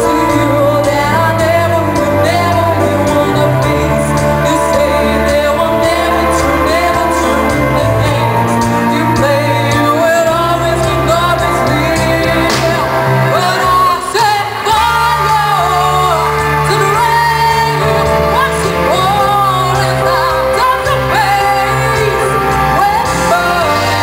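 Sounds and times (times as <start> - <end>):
live band playing pop song: 0.0 - 24.0
woman singing: 0.0 - 24.0.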